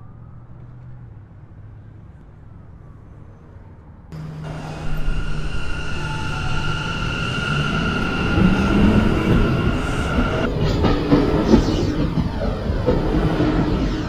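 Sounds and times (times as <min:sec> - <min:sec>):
subway train running: 0:03.9 - 0:14.0
distant siren wailing: 0:04.2 - 0:14.0
high-pitched whine: 0:04.2 - 0:14.0.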